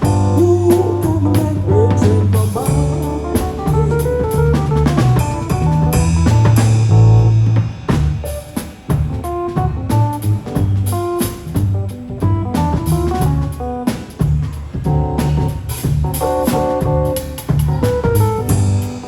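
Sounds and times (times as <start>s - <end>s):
band playing live music: 0.0s - 19.0s
bass line: 0.0s - 19.0s
drum kit beat: 0.0s - 19.0s.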